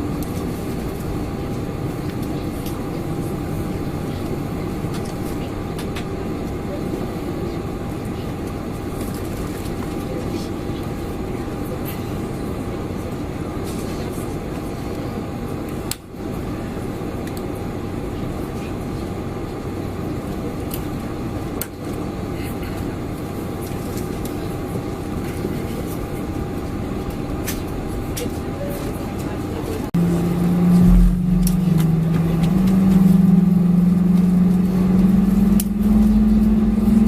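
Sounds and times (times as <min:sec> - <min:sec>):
airplane cabin rush: 0:21.8 - 0:36.4
steady cabin hum: 0:29.5 - 0:36.8.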